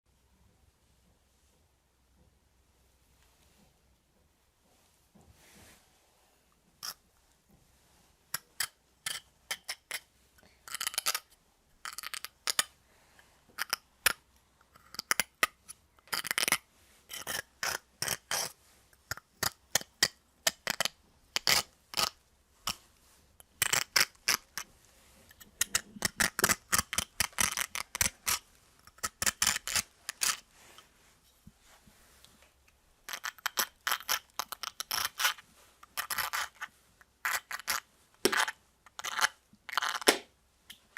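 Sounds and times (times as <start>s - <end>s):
metal nail scraping ice: 8.4s - 10.0s, 16.1s - 19.9s, 23.6s - 24.7s, 25.6s - 30.4s, 33.1s - 40.1s.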